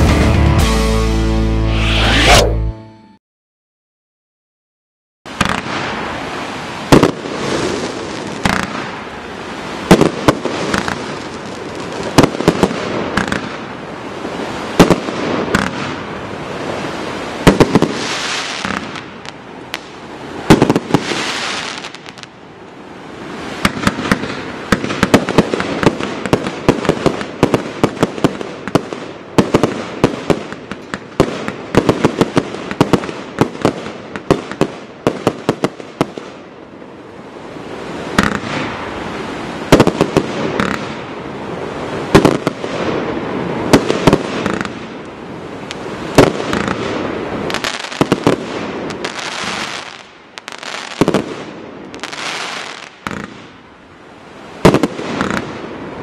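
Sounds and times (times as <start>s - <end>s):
firework aerial bursts: 1.7s - 2.6s, 14.3s - 22.3s, 37.7s - 53.5s, 54.6s - 55.8s
firework launch shots: 5.3s - 6.0s, 6.9s - 9.0s, 39.7s - 41.0s, 54.6s - 55.6s.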